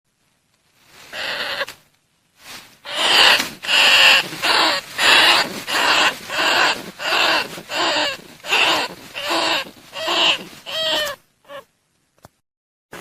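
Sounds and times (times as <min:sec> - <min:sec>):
rat squeals: 0:01.1 - 0:01.7, 0:02.9 - 0:11.7.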